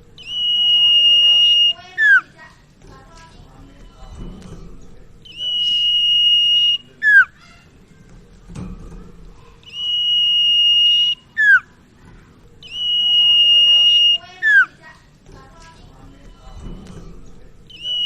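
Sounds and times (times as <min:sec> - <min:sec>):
bird singing high whistles: 0:00.2 - 0:02.3, 0:05.2 - 0:07.4, 0:09.6 - 0:11.8, 0:12.6 - 0:14.8, 0:17.7 - 0:18.0.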